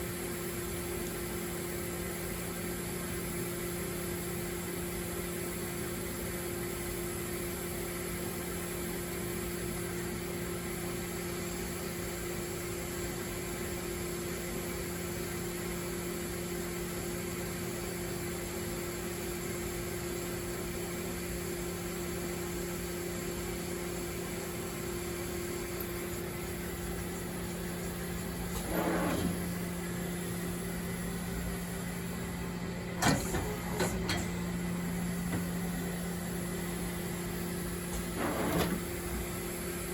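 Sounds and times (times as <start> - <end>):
machine hum with low tones: 0.0 - 39.9
short sliding sound: 28.5 - 29.5
sharp mechanical knocks: 33.0 - 34.4.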